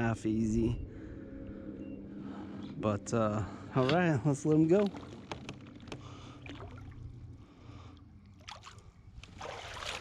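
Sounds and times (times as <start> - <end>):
water sloshing and trickling: 3.8 - 10.0.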